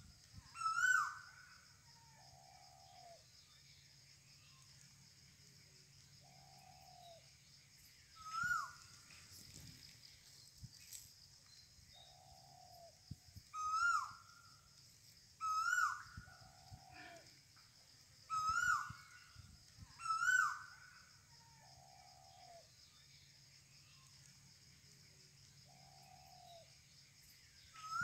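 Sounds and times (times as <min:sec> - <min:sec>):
lower longer bird call: 0:15.4 - 0:17.3, 0:18.3 - 0:19.4.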